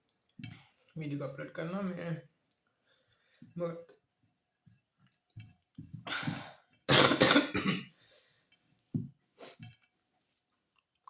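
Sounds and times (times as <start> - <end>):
person coughing: 6.1 - 8.0.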